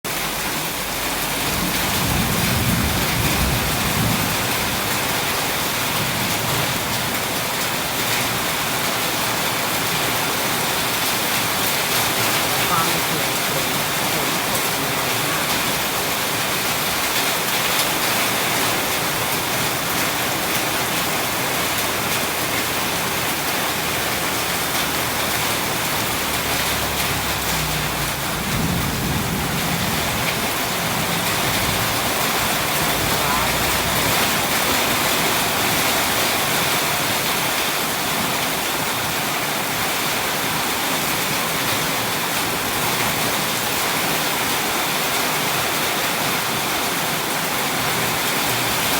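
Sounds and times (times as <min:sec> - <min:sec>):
heavy rain pouring: 0:00.0 - 0:48.9
low rolling thunder: 0:00.7 - 0:08.4, 0:10.6 - 0:37.4.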